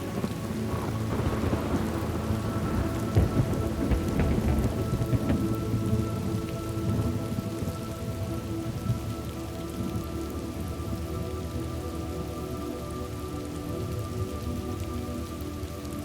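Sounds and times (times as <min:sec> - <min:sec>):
thunder rumble: 0:00.0 - 0:11.7
faint background music: 0:00.0 - 0:16.0
steady rain falling: 0:00.0 - 0:16.0.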